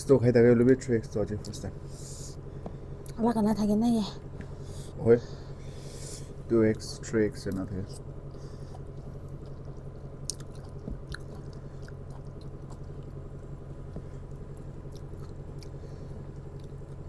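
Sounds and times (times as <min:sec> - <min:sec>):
steady low hum: 0:00.0 - 0:17.0
person chewing noodles: 0:07.9 - 0:17.0
wet clicks and smacks: 0:08.8 - 0:13.2.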